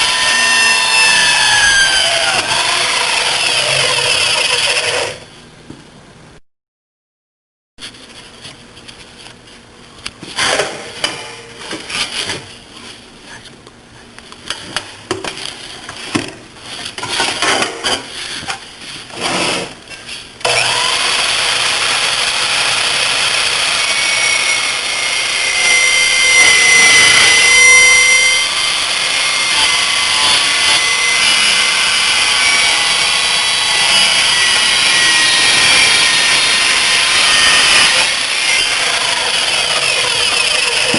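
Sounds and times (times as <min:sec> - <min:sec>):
miter saw cutting metal: 0:00.0 - 0:05.3, 0:20.4 - 0:40.9.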